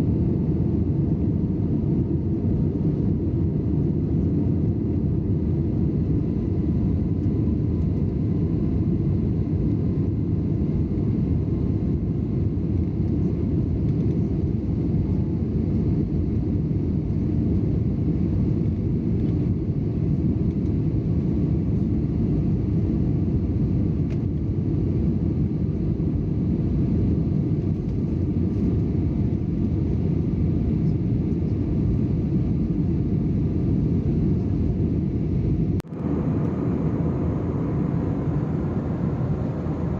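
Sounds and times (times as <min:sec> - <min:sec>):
airplane engines rumbling in cabin: 0:00.0 - 0:39.9
faint thin whine: 0:34.0 - 0:39.9.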